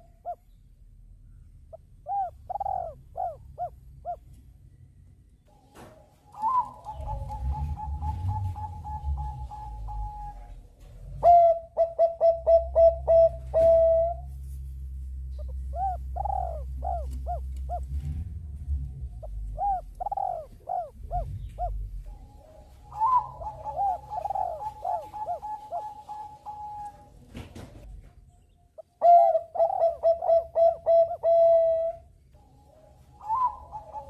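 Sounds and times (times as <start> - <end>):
doves cooing: 0.0 - 0.5, 1.7 - 4.4, 5.5 - 14.4, 15.2 - 28.2, 28.8 - 34.0
low steady rumble: 0.0 - 34.0.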